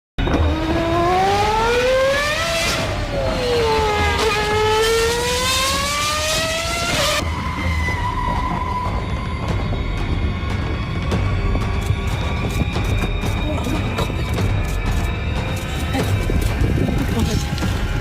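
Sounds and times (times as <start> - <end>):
high-revving engine: 0.2 - 8.8.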